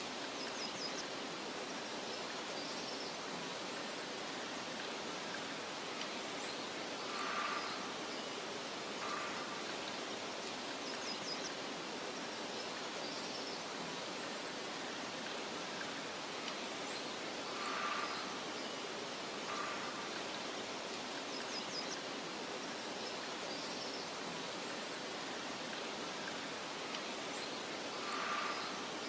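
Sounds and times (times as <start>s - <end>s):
wind hissing in a meadow: 0.0s - 29.0s
faint bird chirps: 6.1s - 14.1s, 26.2s - 29.0s.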